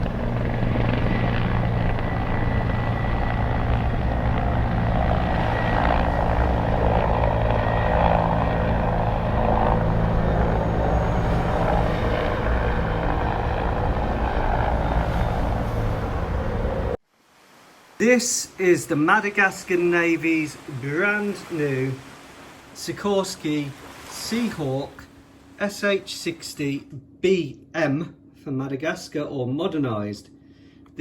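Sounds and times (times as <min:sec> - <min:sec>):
helicopter rotor and engine: 0:00.0 - 0:17.0.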